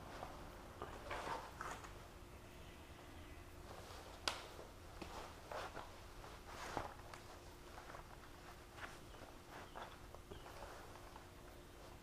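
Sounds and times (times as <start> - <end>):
faint steady hum: 0.0 - 12.0
soft ticks and rustles: 3.6 - 12.0.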